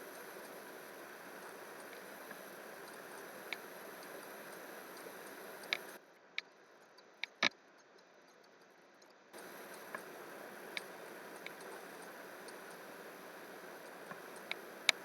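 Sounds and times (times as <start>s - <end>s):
steady background hiss: 0.0s - 6.8s, 9.4s - 15.0s
sharp clicks: 1.2s - 6.0s, 9.4s - 15.0s.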